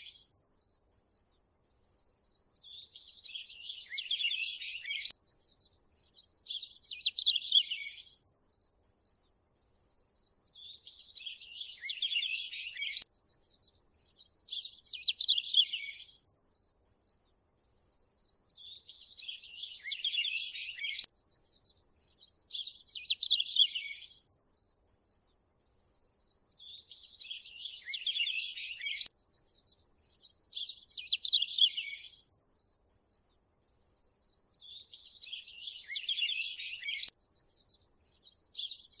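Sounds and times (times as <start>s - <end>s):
insect hiss: 0.0s - 39.0s
birds chirping: 26.8s - 29.1s.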